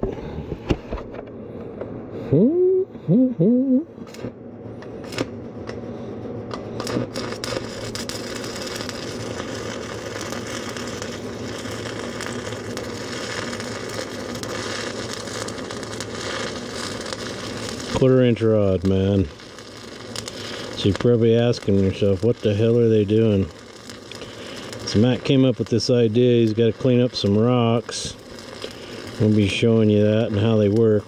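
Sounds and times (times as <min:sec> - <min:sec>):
low hum: 0:00.0 - 0:29.4
welding arc crackling: 0:06.5 - 0:31.0.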